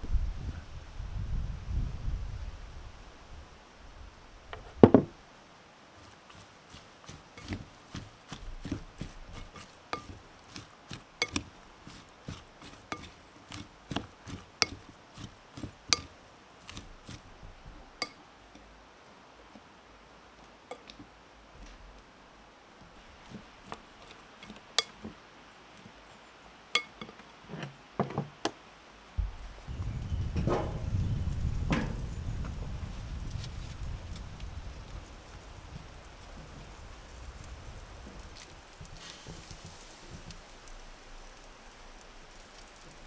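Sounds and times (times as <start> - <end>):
knife chopping on cutting board: 6.3 - 16.1.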